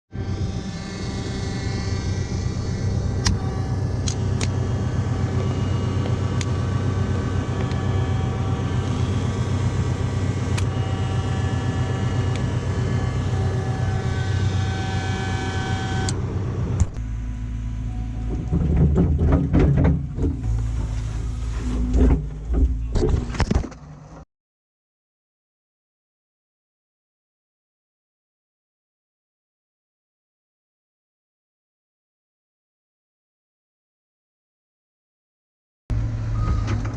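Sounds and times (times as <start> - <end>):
high whining tones: 0.1 - 18.9
diesel engine running under load: 0.1 - 23.2, 35.9 - 36.9
clanking knocks: 18.3 - 20.7.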